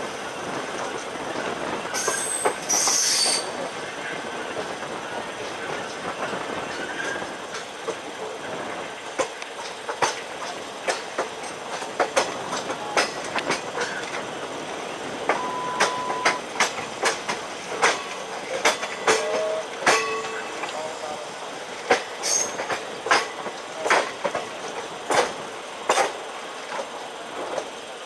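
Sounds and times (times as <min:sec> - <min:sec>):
train wheels on rail: 0:00.0 - 0:28.0
wheels clicking over rail joints: 0:00.5 - 0:28.0.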